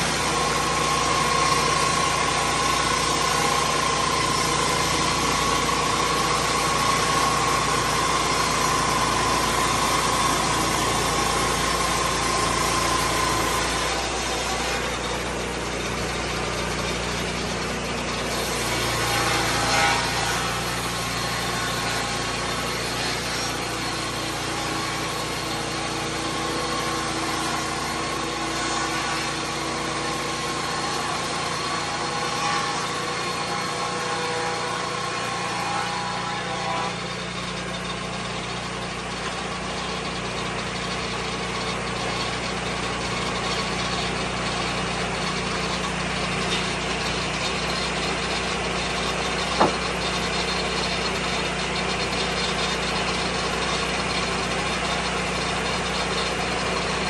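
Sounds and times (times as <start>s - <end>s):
sawmill engine and blade running: 0.0s - 57.0s
whining tones: 41.7s - 57.0s.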